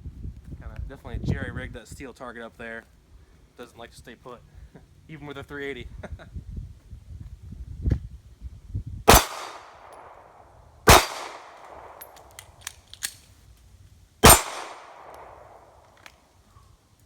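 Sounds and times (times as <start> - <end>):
pistol shots echoing: 9.1 - 10.3, 10.9 - 12.3, 14.2 - 15.8.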